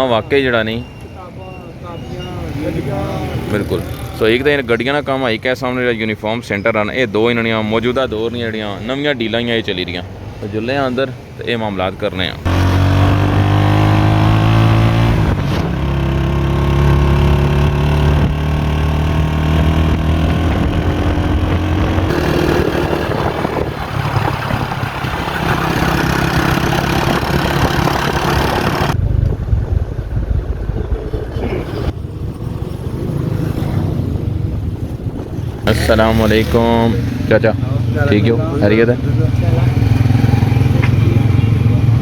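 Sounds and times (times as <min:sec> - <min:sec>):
road noise: 0:00.0 - 0:42.0
vehicle engine running: 0:12.4 - 0:36.8.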